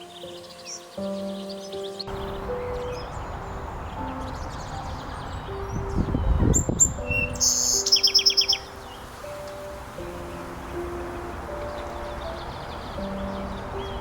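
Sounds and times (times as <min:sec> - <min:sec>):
fast bird trill: 0:00.0 - 0:09.0
soft sustained music notes: 0:00.0 - 0:14.0
songbirds chirping: 0:00.0 - 0:14.0.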